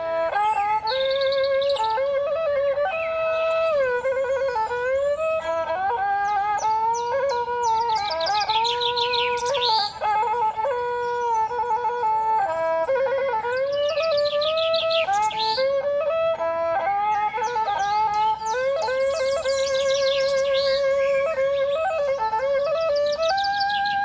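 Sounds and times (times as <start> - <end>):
flute-like wind melody: 0.0 - 24.0
songbirds chirping: 0.0 - 24.0.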